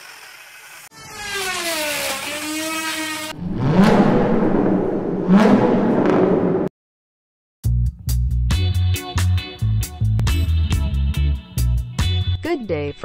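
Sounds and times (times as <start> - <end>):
car engine whirring and revving: 0.6 - 6.7.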